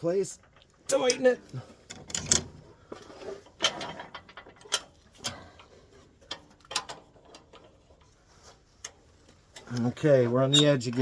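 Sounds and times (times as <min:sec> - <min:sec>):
metallic clicks and knocks: 0:01.9 - 0:02.6, 0:03.6 - 0:08.1.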